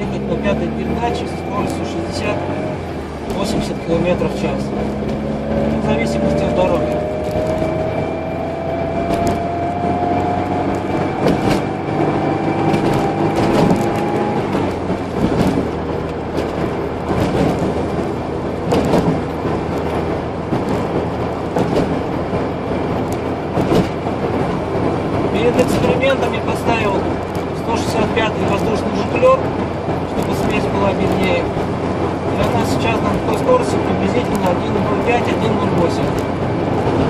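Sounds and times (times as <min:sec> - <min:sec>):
car engine and tyre noise: 0:00.0 - 0:37.0
whine rising in pitch: 0:04.9 - 0:14.9
road surface knocks: 0:10.6 - 0:26.1.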